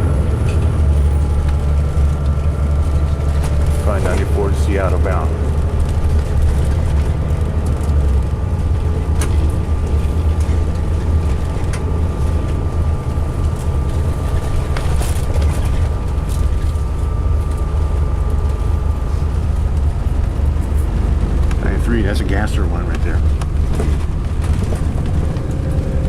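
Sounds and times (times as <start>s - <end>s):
diesel engine droning: 0.0s - 26.0s
high whine: 0.0s - 26.0s.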